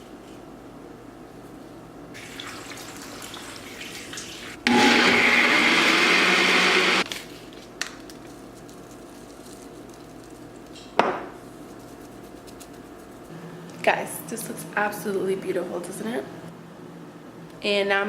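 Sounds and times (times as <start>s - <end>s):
blender running: 4.6s - 7.0s.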